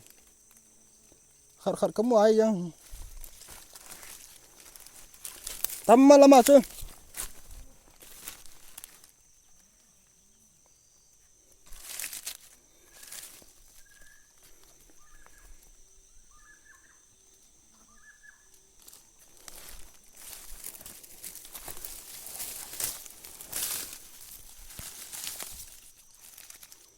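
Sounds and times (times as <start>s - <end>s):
high-pitched insect drone: 0.0s - 26.9s
footsteps crunching through leaves: 2.8s - 9.2s, 11.7s - 15.5s, 18.8s - 26.9s.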